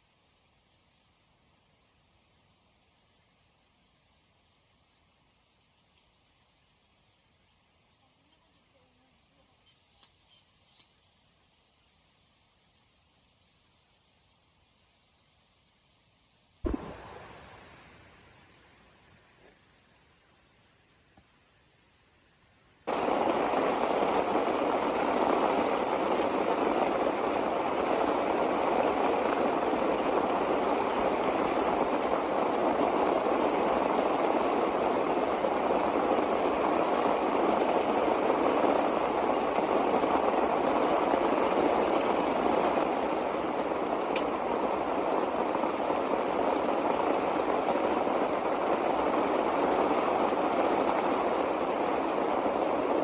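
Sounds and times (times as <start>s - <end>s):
rushing water: 22.9s - 53.0s.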